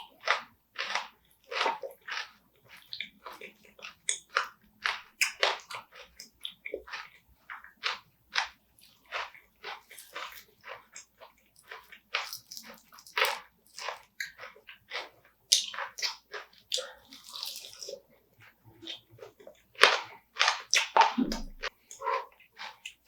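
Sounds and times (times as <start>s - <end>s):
chewing and crunching: 0.0s - 23.0s.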